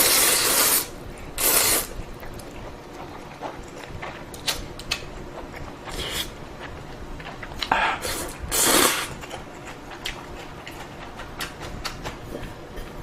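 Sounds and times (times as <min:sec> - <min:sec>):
noodles slurped: 0:00.0 - 0:03.8, 0:07.9 - 0:09.2
wet chewing: 0:00.5 - 0:13.0.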